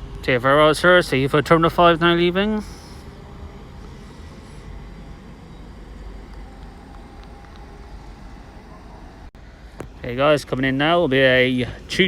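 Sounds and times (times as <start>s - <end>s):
electric train rumbling: 0.0s - 12.0s
faint hum: 0.0s - 12.0s.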